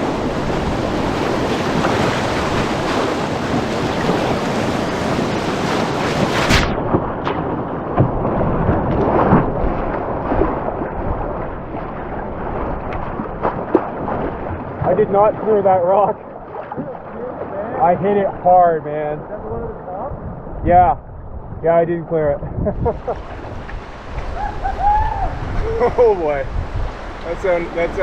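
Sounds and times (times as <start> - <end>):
whitewater roaring: 0.0 - 21.2, 22.4 - 28.0
wind buffeting microphone: 0.0 - 28.0.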